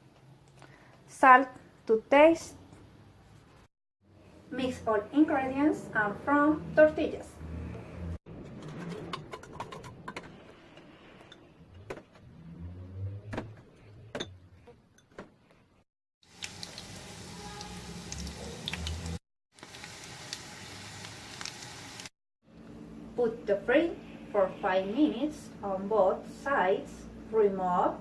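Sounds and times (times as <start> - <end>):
patties sizzling in a pan: 16.3 - 22.1.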